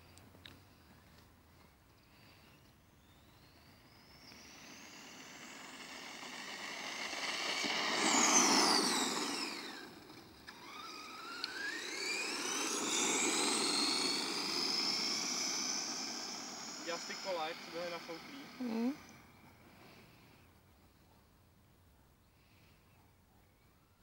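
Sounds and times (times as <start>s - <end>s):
rc truck motor whine: 2.0s - 20.6s.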